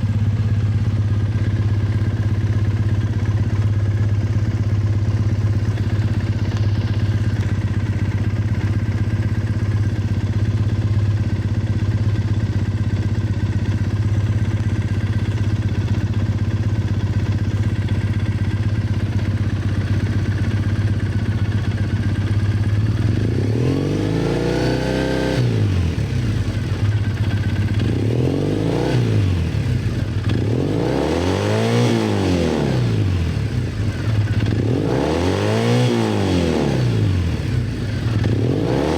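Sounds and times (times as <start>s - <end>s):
motorcycle engine idling: 0.0s - 38.9s
engine revving: 23.1s - 26.2s, 27.8s - 33.6s, 34.4s - 38.9s.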